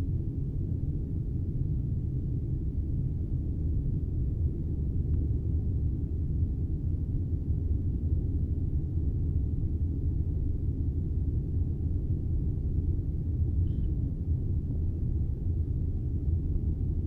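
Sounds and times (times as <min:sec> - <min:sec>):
airliner cabin engine rumble: 0:09.4 - 0:17.0.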